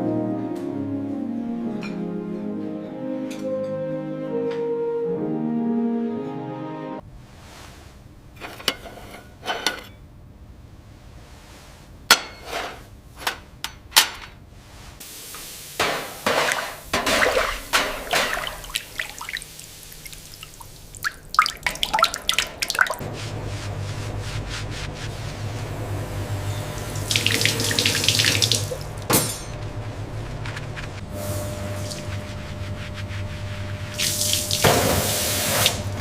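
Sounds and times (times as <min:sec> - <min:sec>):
water pouring and dripping: 0:15.0 - 0:23.1, 0:26.6 - 0:29.2, 0:33.8 - 0:36.0.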